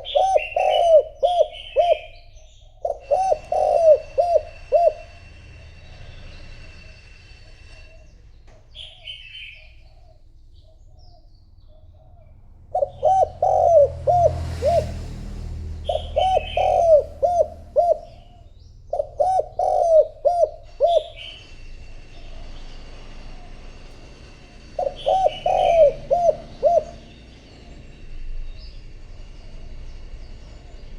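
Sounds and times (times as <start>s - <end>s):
dove cooing: 0.0s - 2.2s, 2.8s - 5.2s, 11.8s - 15.0s, 15.8s - 21.5s, 24.8s - 27.3s
small bird chirping: 8.7s - 13.8s.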